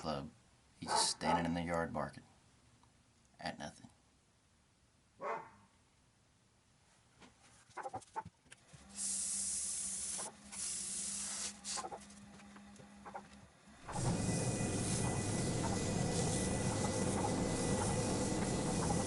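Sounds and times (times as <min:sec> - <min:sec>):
dog barking: 0:00.8 - 0:01.5, 0:05.2 - 0:05.6
sanding hiss: 0:08.9 - 0:12.0, 0:13.8 - 0:19.0
wood lathe humming: 0:09.2 - 0:19.0.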